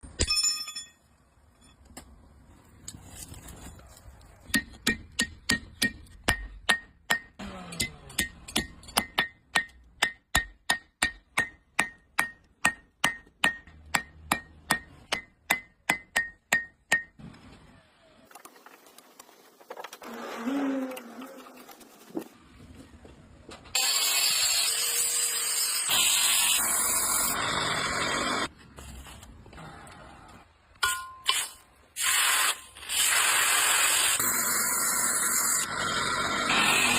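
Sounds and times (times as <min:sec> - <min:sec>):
hammer striking metal on anvil: 0:04.5 - 0:17.2, 0:30.8 - 0:31.4.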